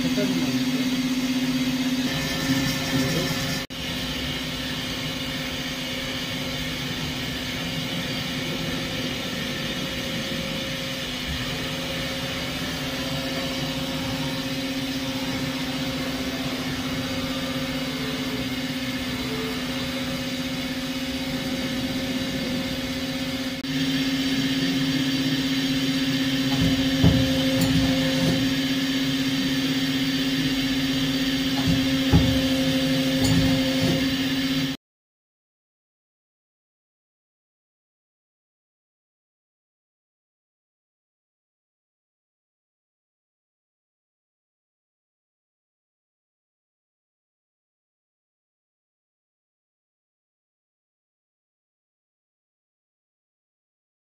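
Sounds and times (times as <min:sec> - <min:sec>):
lathe humming: 0:00.0 - 0:34.8.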